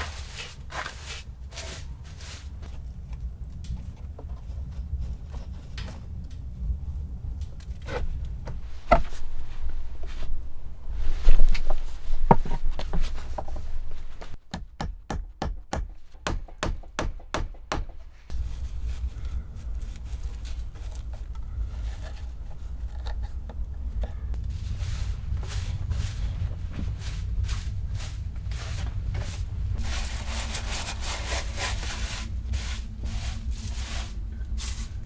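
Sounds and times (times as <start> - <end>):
handling thuds and scrapes: 0.0 - 14.4, 17.8 - 35.0
low rumble of storm wind: 0.0 - 14.4, 17.9 - 35.0.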